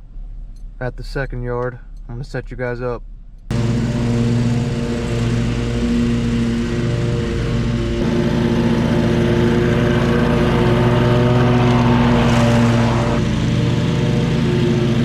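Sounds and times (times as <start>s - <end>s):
lawn mower engine running: 3.5s - 15.0s.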